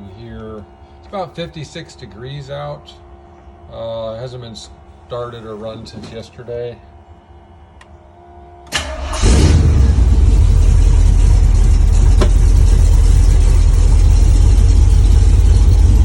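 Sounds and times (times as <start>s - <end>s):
vehicle engine cranking and running: 8.7s - 16.0s.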